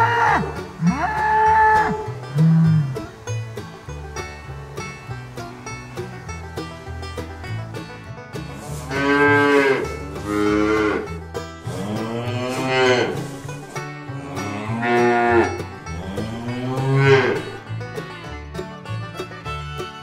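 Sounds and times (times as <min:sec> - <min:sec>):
cattle mooing: 0:00.0 - 0:06.2, 0:08.5 - 0:17.6.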